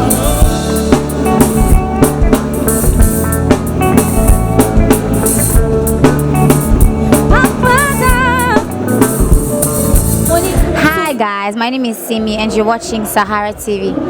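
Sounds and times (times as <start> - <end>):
bass line: 0.0 - 11.1
drum kit beat: 0.0 - 11.2.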